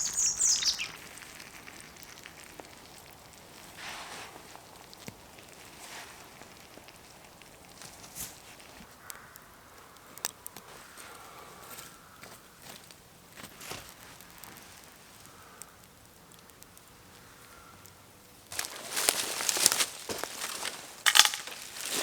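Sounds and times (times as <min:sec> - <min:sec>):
songbird singing: 0:00.0 - 0:02.8
campfire crackling: 0:00.0 - 0:22.0
soft rustles: 0:03.5 - 0:08.9.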